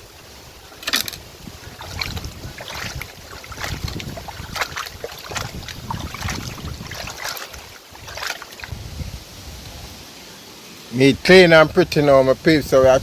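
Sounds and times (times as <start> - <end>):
water splashing and sloshing: 0.0 - 10.0
wind rumbling on microphone: 0.0 - 10.2, 11.1 - 13.0.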